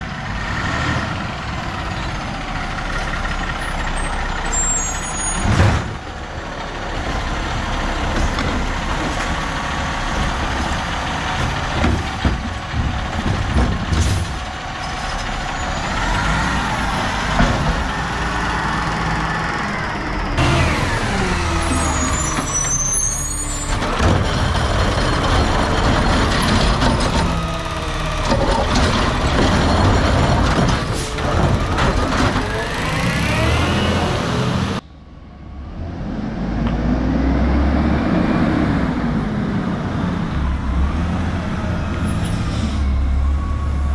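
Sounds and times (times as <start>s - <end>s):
diesel truck engines: 0.0s - 43.9s
air brake hisses: 42.2s - 43.0s.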